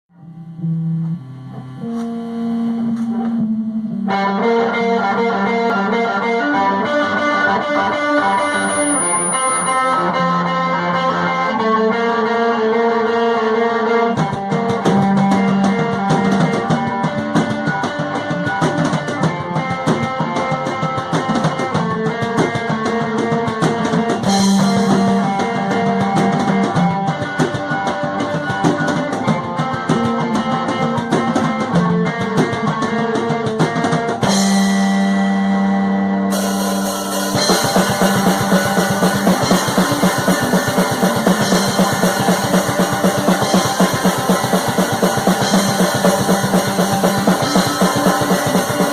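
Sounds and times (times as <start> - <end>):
rock band music: 0.5 - 48.9
cymbals: 8.2 - 10.2, 36.3 - 48.9.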